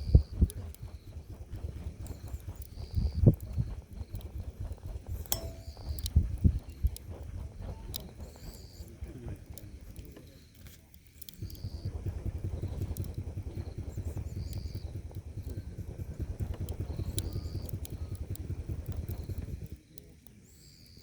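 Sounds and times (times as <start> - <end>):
burning wood crackling: 0.0 - 21.0
air buffeting microphone: 11.5 - 19.8.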